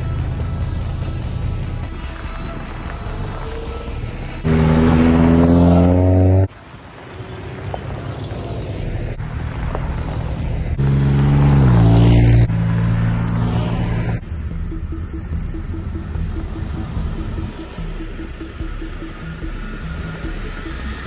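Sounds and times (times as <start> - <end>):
road noise: 0.0 - 21.0
car engine revving hard: 4.3 - 6.5, 10.7 - 14.2.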